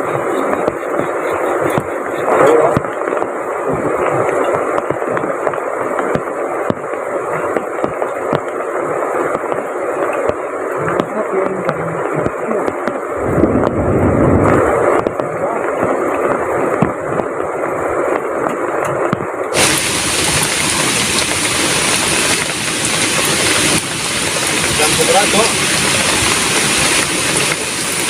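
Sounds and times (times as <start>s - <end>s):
river water rushing: 0.0s - 18.9s, 19.5s - 28.0s
heavy rain: 0.0s - 28.0s
low rumble: 12.0s - 18.4s.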